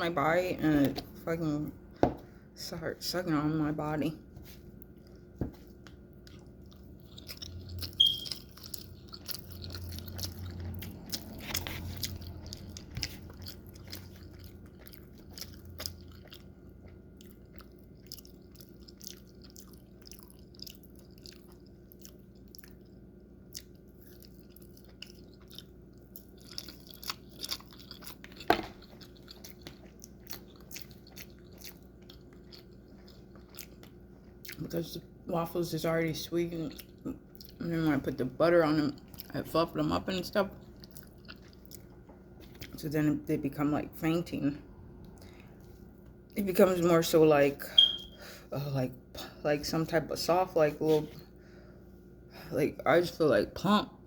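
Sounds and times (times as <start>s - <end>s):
person chewing food: 4.4s - 34.7s, 36.6s - 37.7s, 38.9s - 39.4s, 40.5s - 42.8s, 45.0s - 46.4s.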